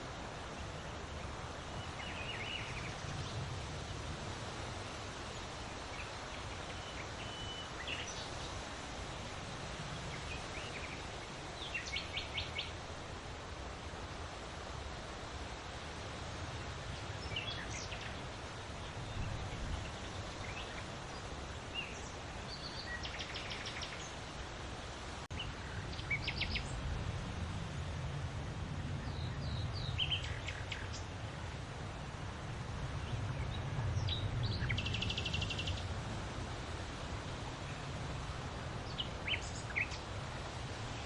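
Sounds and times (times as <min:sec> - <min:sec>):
gusting wind rumble: 0:00.0 - 0:41.0
small birds chirping and trilling: 0:25.3 - 0:26.9, 0:29.0 - 0:31.2, 0:33.0 - 0:35.9, 0:38.8 - 0:40.2.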